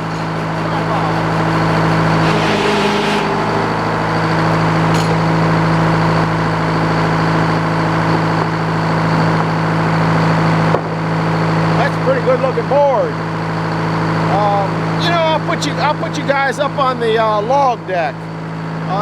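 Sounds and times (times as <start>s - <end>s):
saw blade cutting wood: 0.0s - 5.6s
sawmill engine running: 0.0s - 9.1s.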